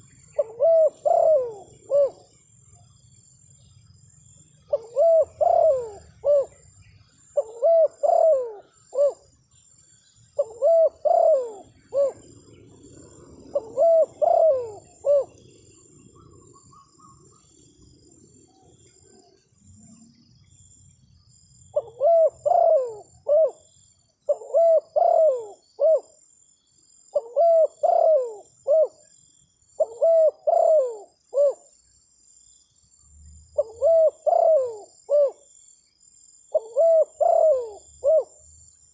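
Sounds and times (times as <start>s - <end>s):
dove cooing: 0.0s - 2.4s, 4.7s - 9.3s, 10.4s - 19.4s, 21.8s - 23.7s, 24.3s - 26.2s, 27.1s - 29.1s, 29.8s - 31.7s, 33.6s - 35.5s, 36.5s - 38.5s.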